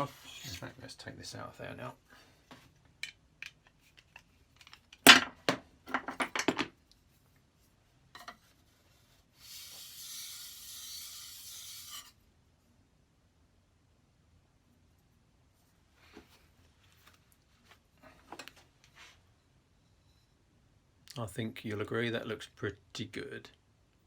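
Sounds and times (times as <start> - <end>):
metal knocks and clatter: 5.1 - 6.7.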